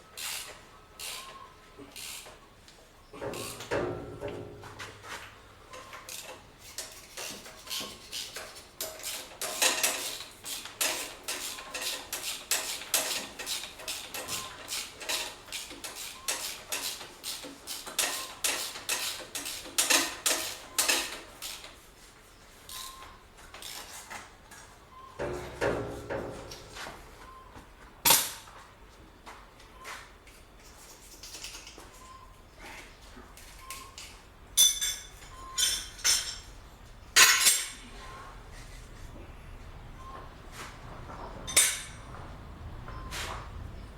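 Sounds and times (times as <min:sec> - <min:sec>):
metal tools clinking on steel: 0:33.5 - 0:36.6, 0:37.2 - 0:37.9, 0:41.5 - 0:42.2.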